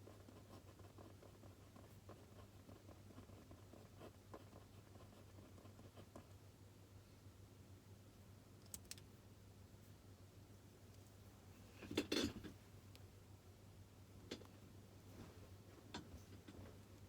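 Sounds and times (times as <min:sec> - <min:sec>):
pen writing on paper: 0:00.0 - 0:06.3
low steady hum: 0:00.0 - 0:17.0
small sharp clicks: 0:08.6 - 0:09.1.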